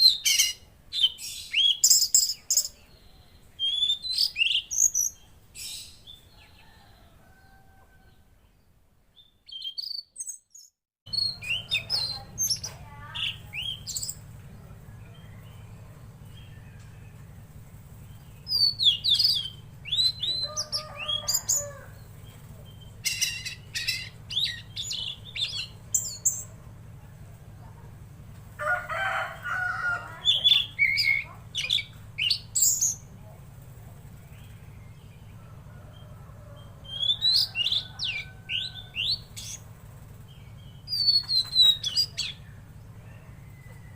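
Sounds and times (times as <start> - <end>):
songbird chirping and trilling: 0.0 - 43.9
steady low hum: 11.1 - 43.9.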